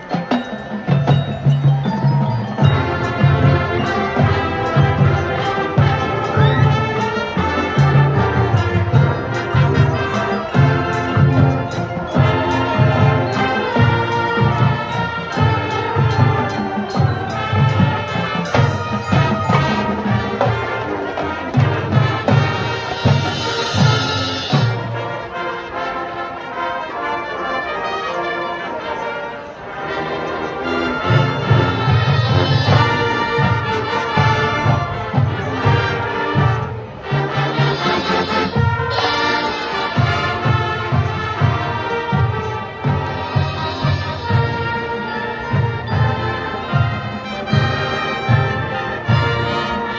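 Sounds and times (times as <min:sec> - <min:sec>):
low drums of drumline: 0:00.0 - 0:25.8, 0:30.6 - 0:49.9
brass instruments: 0:00.0 - 0:49.9.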